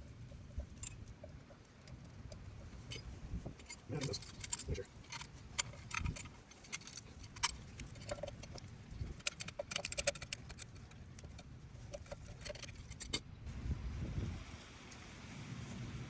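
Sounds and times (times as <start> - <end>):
metallic clicks of hand tools: 1.8 - 13.2.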